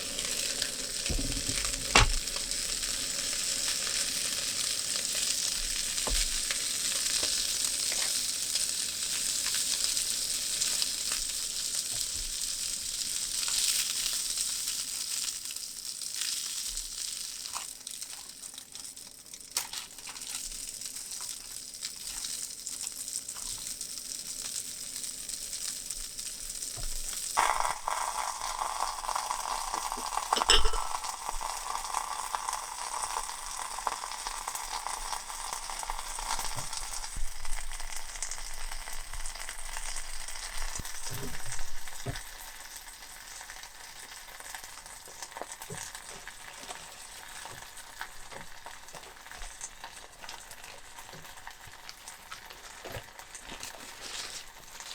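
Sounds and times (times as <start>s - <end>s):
food sizzling in a frying pan: 0.0s - 54.9s
utensil knock: 1.1s - 2.2s, 30.4s - 31.0s.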